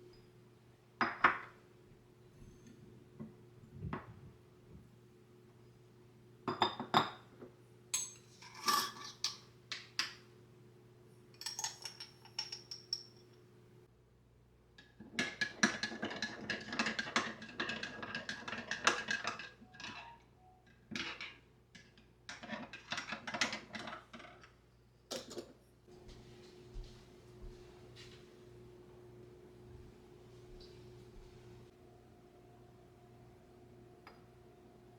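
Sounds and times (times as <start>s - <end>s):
dishes and cutlery clattering: 8.0s - 9.5s.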